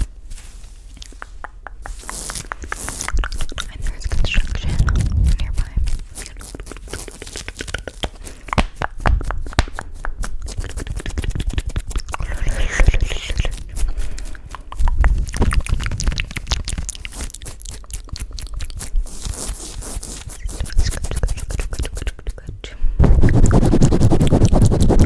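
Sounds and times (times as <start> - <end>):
wet mouth clicks and smacks: 1.0 - 19.6, 20.3 - 22.4
low muffled swell: 23.0 - 25.0.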